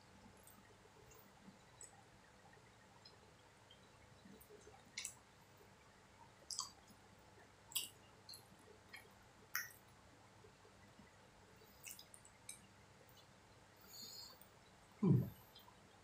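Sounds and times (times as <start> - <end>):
wet chewing mouth clicks: 6.5 - 6.8.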